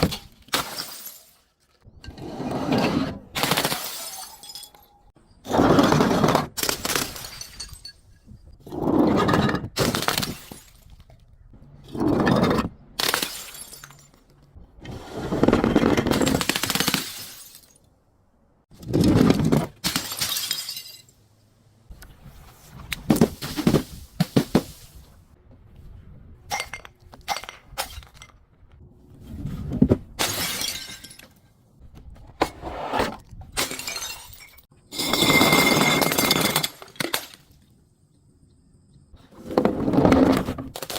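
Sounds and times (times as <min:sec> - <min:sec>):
glass bottles shattering: 0:00.6 - 0:01.4, 0:03.5 - 0:05.1, 0:06.6 - 0:08.4, 0:13.0 - 0:14.2, 0:16.1 - 0:17.8, 0:19.8 - 0:21.2, 0:30.2 - 0:31.4, 0:33.6 - 0:37.4.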